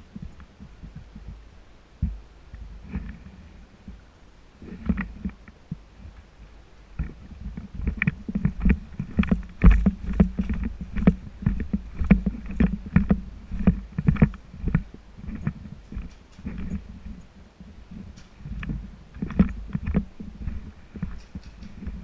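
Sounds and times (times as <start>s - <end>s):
knocks and thuds: 7.0s - 16.9s.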